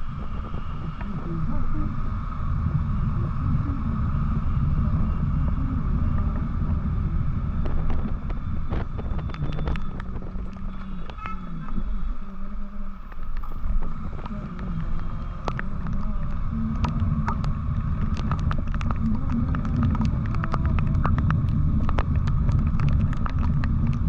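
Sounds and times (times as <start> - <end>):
road noise: 0.0 - 24.0
wind rumble on microphone: 0.0 - 24.0.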